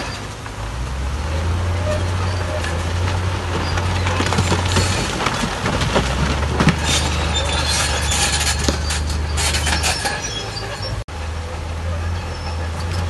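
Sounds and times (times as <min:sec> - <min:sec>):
bulldozer diesel engine running: 0:00.0 - 0:13.0
metal tracks clattering: 0:00.0 - 0:13.0
rock scraping: 0:01.6 - 0:11.0.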